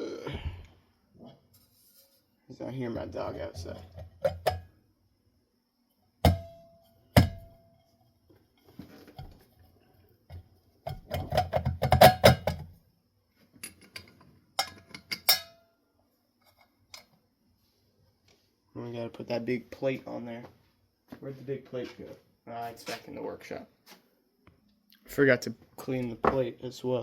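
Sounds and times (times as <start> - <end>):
metal parts clinking and ringing: 13.6 - 15.6.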